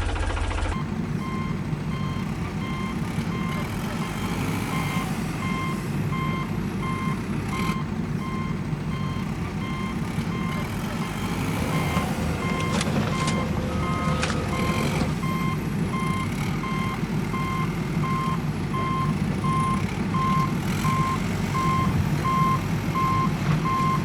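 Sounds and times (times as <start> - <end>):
reversing alarm beeping: 0.7 - 24.0
low engine rumble: 4.8 - 24.0.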